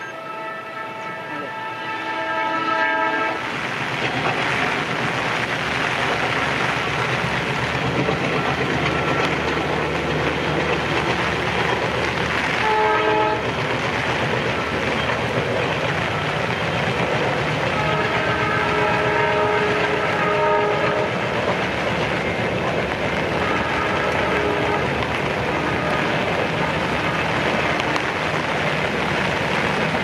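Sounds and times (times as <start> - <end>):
locomotive horn: 0.0 - 3.5, 8.8 - 9.4, 12.5 - 13.5, 17.7 - 21.2, 23.3 - 28.2
train rushing on rails: 0.0 - 30.0.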